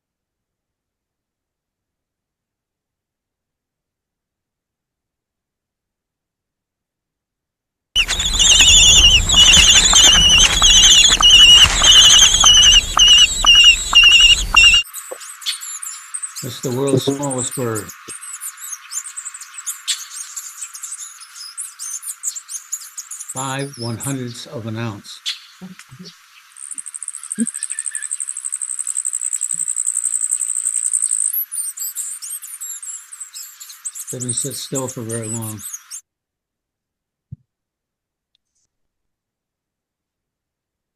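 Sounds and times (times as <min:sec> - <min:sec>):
high-pitched bird warbling: 0:08.0 - 0:14.8, 0:26.7 - 0:28.3
hummingbird high rapid trill: 0:08.0 - 0:23.9, 0:25.2 - 0:36.0.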